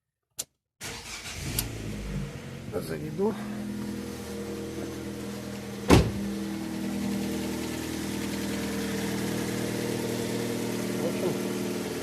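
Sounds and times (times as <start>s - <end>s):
car engine idling: 1.0s - 12.0s
sharp thump: 5.9s - 6.3s.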